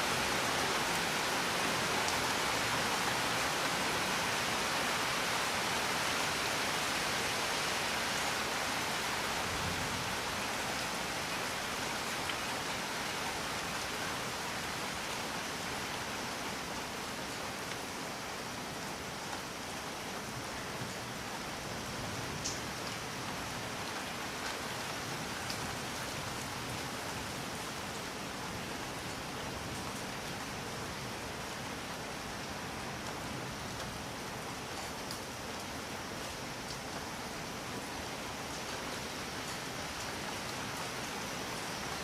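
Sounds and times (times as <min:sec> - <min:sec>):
steady rain falling: 0:00.0 - 0:42.0
faint raindrop ticks: 0:19.3 - 0:19.5, 0:22.4 - 0:23.1, 0:25.4 - 0:25.8, 0:32.9 - 0:37.1, 0:38.4 - 0:41.0.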